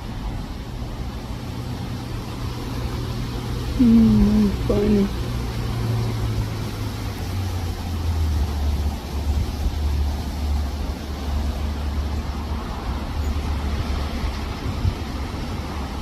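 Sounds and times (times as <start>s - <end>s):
wind blowing across microphone: 4.5s - 16.0s.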